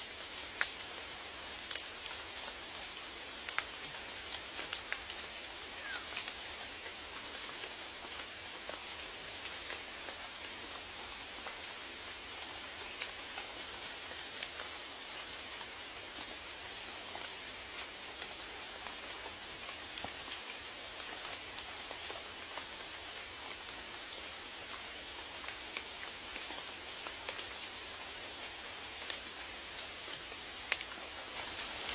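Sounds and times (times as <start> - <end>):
steady rain hissing: 0.0 - 31.9
raindrops ticking: 0.4 - 11.6.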